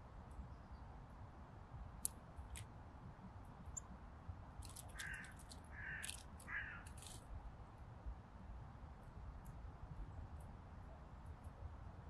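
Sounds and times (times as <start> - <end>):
harsh rasping bird calls: 4.9 - 6.9.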